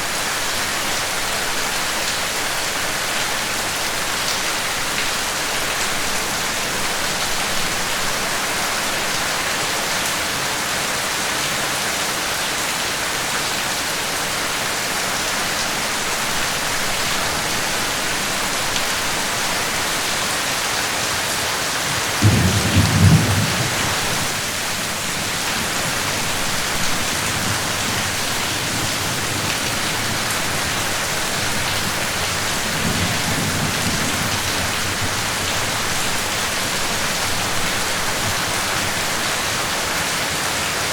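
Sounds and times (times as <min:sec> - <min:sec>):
heavy rain falling: 0:00.0 - 0:40.9
thunder rumbling: 0:22.2 - 0:36.0.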